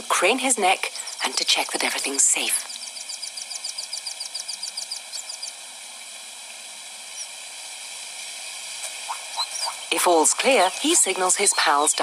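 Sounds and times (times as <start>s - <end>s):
high insect chorus: 2.6s - 5.6s
rapid high chirps: 2.7s - 5.5s, 9.1s - 10.0s.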